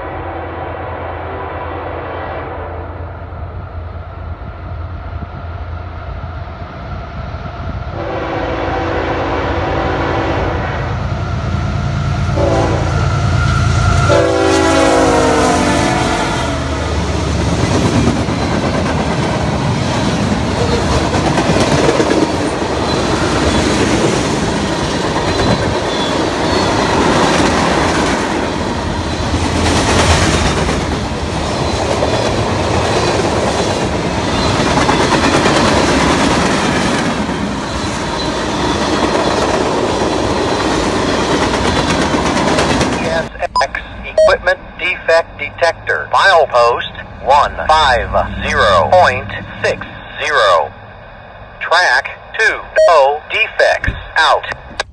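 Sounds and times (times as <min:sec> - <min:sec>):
train horn: 0:00.0 - 0:03.3, 0:07.9 - 0:11.1, 0:12.2 - 0:17.1
locomotive engine rumble: 0:37.2 - 0:52.6.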